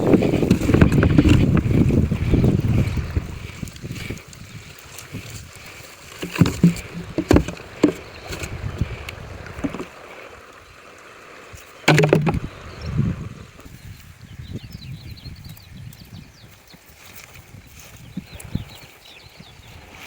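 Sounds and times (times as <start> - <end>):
knocks and thuds: 6.2 - 8.0, 11.9 - 12.5.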